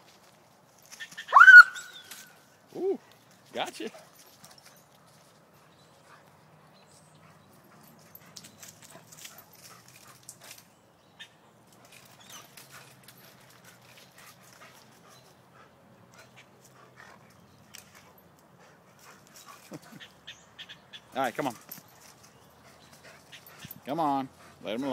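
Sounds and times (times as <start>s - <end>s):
faint clicks and scuffs: 0.0s - 1.3s, 2.0s - 10.8s, 11.6s - 15.5s.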